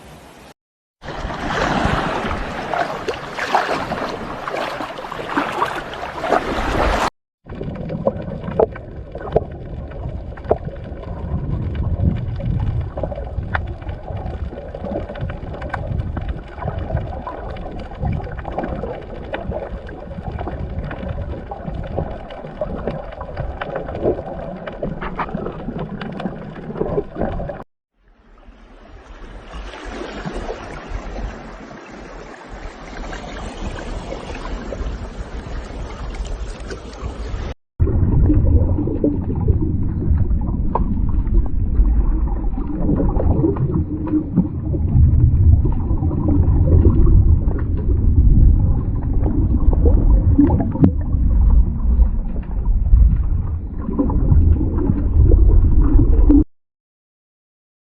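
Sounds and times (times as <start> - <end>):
rush of water: 0.0 - 56.2
small water splashes: 1.0 - 27.6, 28.2 - 37.6
low rumble: 7.4 - 27.6, 34.0 - 56.5.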